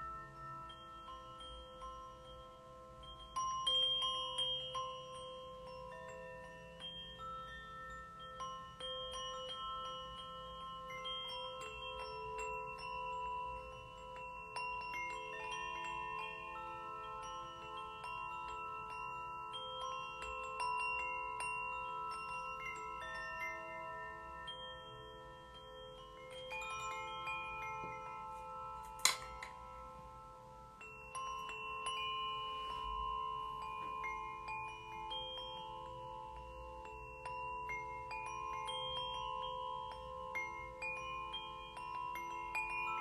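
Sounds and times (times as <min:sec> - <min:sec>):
bells ringing: 0:00.0 - 0:43.0
singing bowl: 0:00.0 - 0:43.0
steel tongue drum: 0:00.0 - 0:43.0
sharp click: 0:28.9 - 0:29.6.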